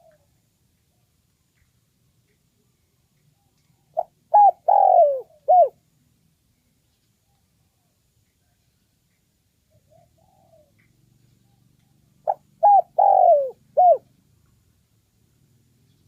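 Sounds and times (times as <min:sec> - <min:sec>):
dove cooing: 0:00.0 - 0:00.3, 0:03.8 - 0:05.8, 0:09.7 - 0:14.1
faint soft bird calls: 0:00.0 - 0:14.6.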